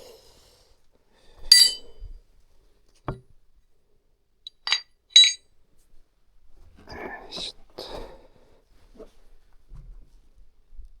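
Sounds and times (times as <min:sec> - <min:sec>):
light metallic clinks: 0:01.5 - 0:02.0, 0:04.5 - 0:05.4.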